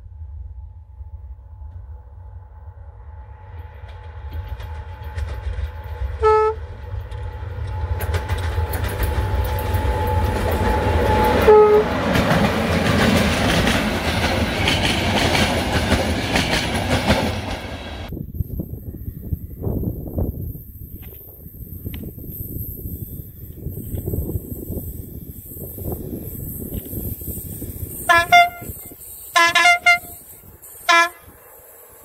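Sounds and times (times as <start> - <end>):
train passing at speed: 0.0 - 32.0
train horn blasts: 5.8 - 6.8, 9.9 - 12.2, 28.0 - 31.4
wheels clattering over rail joints: 7.0 - 17.8.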